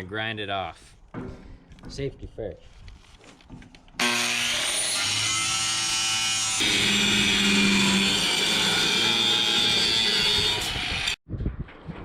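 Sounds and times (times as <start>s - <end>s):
grinder grinding steel: 4.0s - 11.2s.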